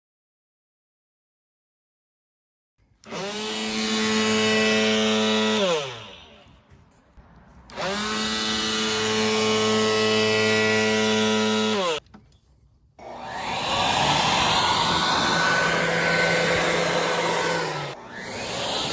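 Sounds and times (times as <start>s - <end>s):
electric blower motor humming: 3.0s - 6.6s, 7.7s - 12.0s, 13.0s - 18.9s
rushing blower: 3.0s - 6.6s, 7.7s - 12.0s, 13.0s - 18.9s.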